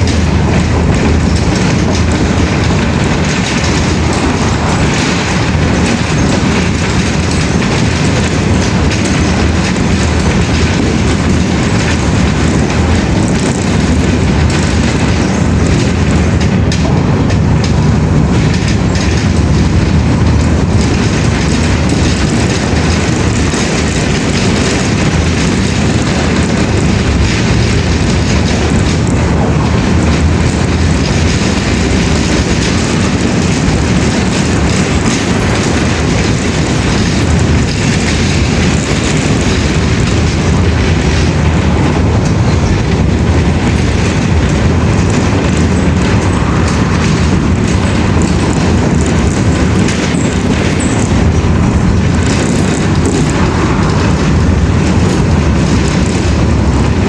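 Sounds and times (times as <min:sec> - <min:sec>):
loud steady rumbling: 0:00.0 - 0:57.0.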